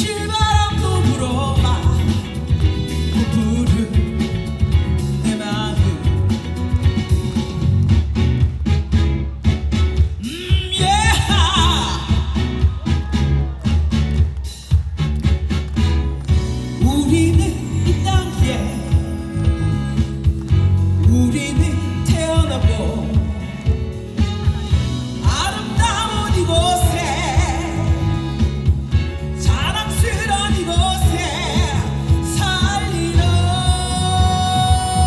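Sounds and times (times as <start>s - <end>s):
person singing: 0.0s - 7.4s, 10.2s - 14.8s, 16.6s - 35.0s
live band music: 0.0s - 35.0s.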